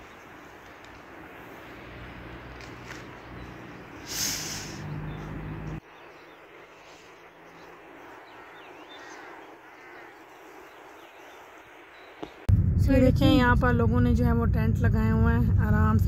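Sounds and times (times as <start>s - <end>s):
low steady hum: 0.0s - 16.0s
outdoor ambience: 0.0s - 16.0s
faint bird chirps: 3.2s - 12.5s.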